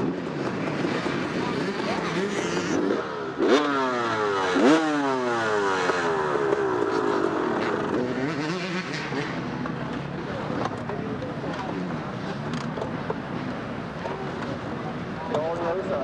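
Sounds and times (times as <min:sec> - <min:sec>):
dirt bike engine revving: 0:00.0 - 0:10.6.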